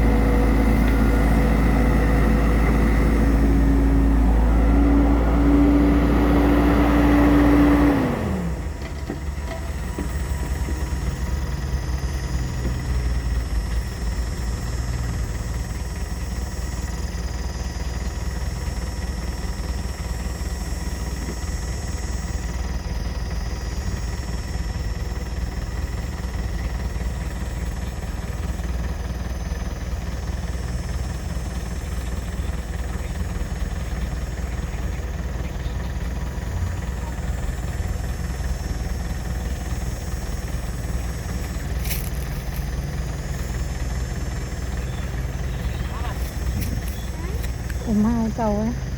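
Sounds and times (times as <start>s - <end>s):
excavator diesel engine rumbling: 0.0s - 48.9s.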